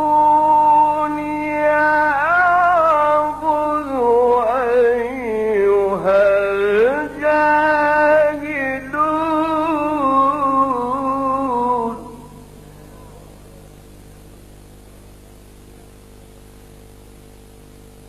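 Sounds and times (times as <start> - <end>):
man reciting melodically: 0.0 - 12.4
steady low hum: 0.0 - 18.0.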